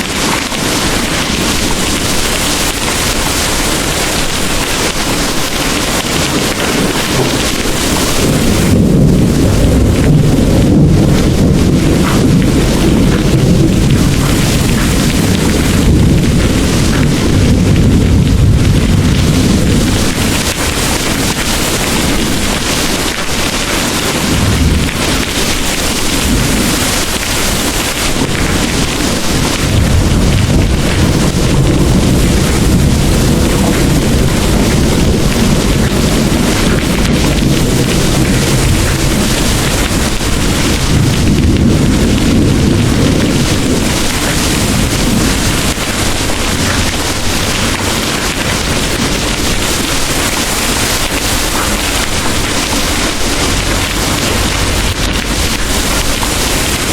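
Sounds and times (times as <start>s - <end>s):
heavy rain pouring: 0.0s - 56.9s
low rolling thunder: 0.0s - 56.9s.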